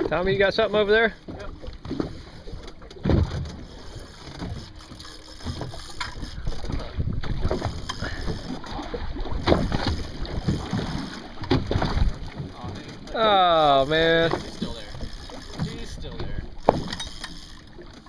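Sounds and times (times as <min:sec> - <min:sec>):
wind buffeting microphone: 0:05.8 - 0:16.8.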